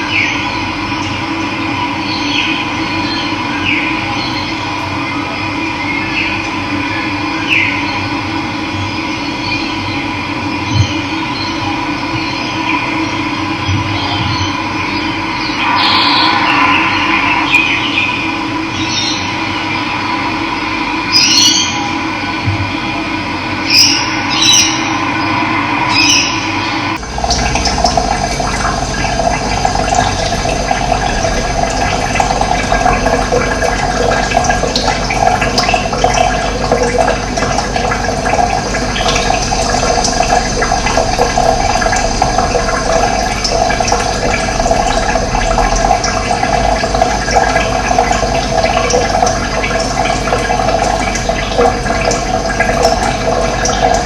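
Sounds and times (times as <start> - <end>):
water flowing and gurgling: 0.0 - 54.0
tonal passage: 15.4 - 19.4, 24.6 - 54.0.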